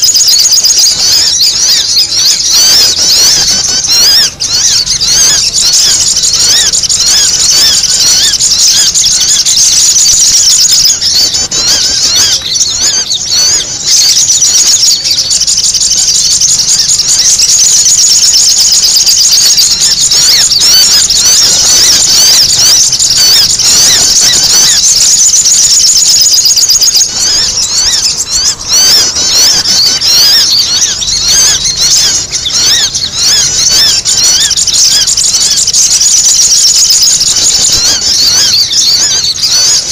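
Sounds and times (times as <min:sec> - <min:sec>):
birds twittering chirps: 0:00.0 - 0:39.9.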